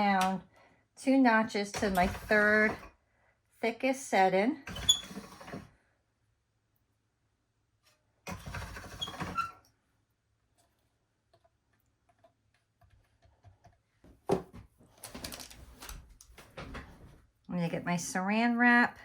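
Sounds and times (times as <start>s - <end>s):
pasta machine rolling: 4.7s - 5.7s, 8.3s - 9.5s.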